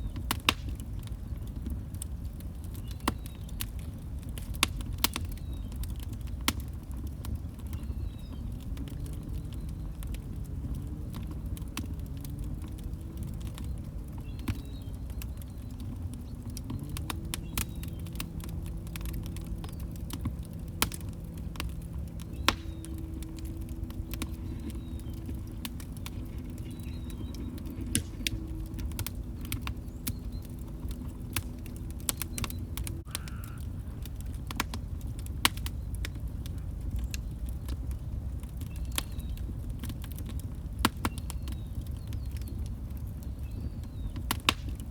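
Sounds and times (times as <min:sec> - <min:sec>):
log fire crackling and popping: 0:00.0 - 0:44.9
faint wavering low hum: 0:07.8 - 0:34.1.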